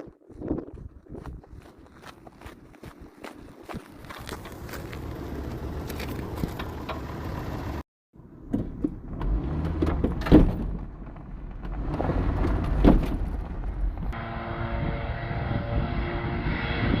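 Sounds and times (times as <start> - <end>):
truck engine and road noise: 0.4 - 17.0
rattles and clicks: 5.8 - 7.3
loud thumps: 8.5 - 14.2.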